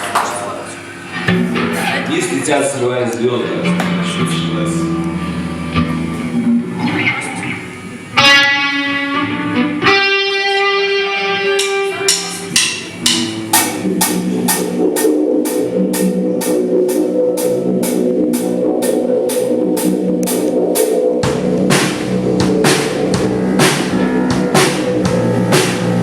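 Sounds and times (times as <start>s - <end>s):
electric guitar chords: 0.7s - 26.0s
drums beating: 1.2s - 6.7s, 11.4s - 26.0s
cymbal strikes: 11.4s - 26.0s.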